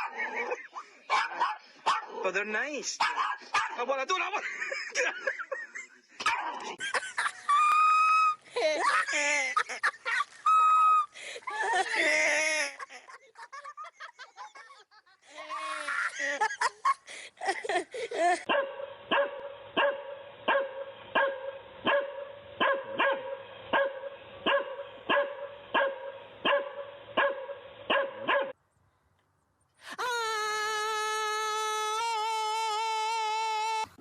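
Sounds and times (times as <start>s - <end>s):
dog barking: 0.0s - 0.5s, 1.1s - 2.2s, 3.0s - 3.8s, 18.5s - 28.6s.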